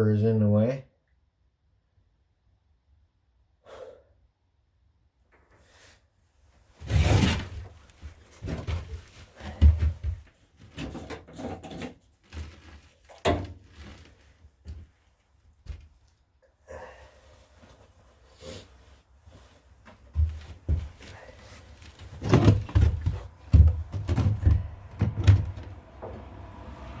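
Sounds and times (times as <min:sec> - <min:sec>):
tools knocking and rattling: 0:22.1 - 0:26.2.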